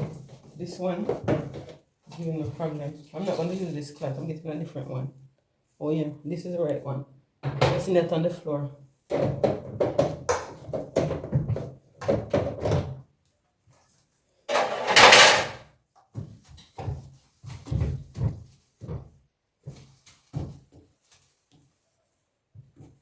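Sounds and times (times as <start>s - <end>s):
knocks and thumps of objects handled: 0.0s - 2.6s, 7.4s - 8.0s, 9.1s - 13.0s, 14.5s - 21.7s.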